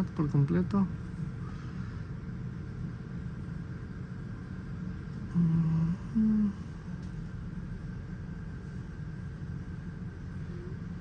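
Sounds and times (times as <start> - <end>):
low background rumble: 0.0 - 11.0
man humming: 5.3 - 6.7.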